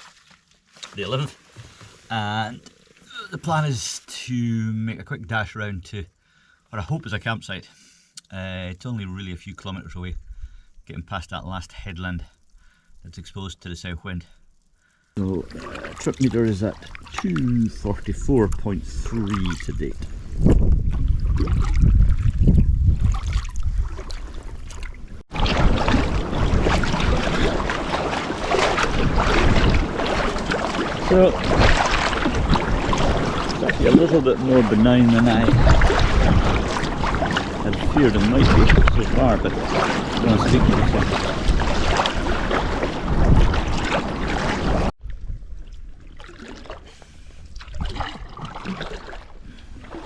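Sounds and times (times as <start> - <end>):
sea water washing around kayak: 15.1 - 50.0
wind buffeting microphone: 17.2 - 46.0.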